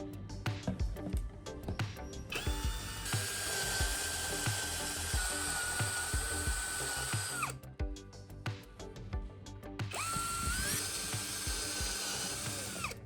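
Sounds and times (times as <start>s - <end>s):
background music with beat: 0.0s - 13.0s
electric drill running: 2.3s - 7.6s, 9.9s - 13.0s.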